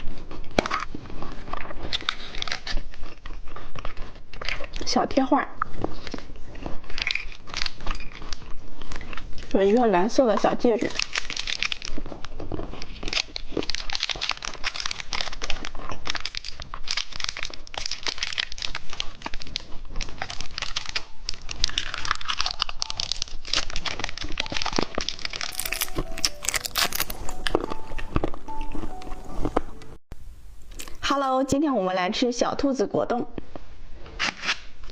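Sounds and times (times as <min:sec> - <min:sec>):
plastic wrappers crinkling: 0:05.6 - 0:29.8.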